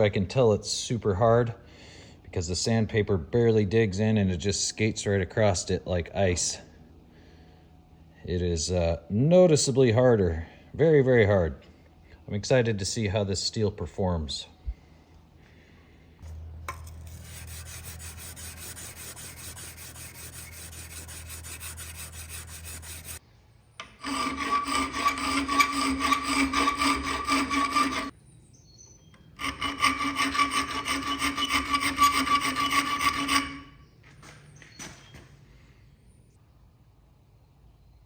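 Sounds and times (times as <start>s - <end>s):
low hum: 14.4s - 25.3s
sandpaper rubbing on steel blade: 16.7s - 23.2s, 24.0s - 28.1s.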